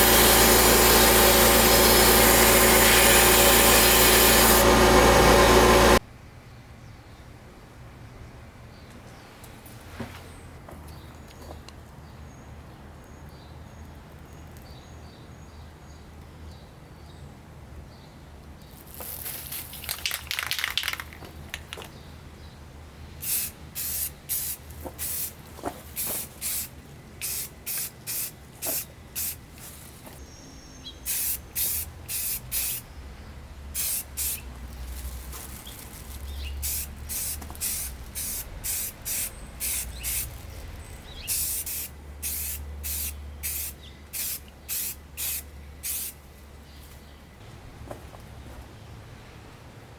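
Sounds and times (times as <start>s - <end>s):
spray paint can hissing: 0.0s - 6.0s, 18.9s - 21.9s, 23.2s - 29.8s, 31.0s - 32.9s, 33.7s - 46.2s.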